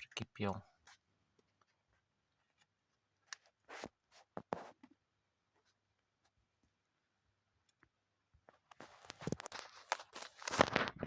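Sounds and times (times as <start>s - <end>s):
faint scrapes and clicks: 8.5s - 11.0s.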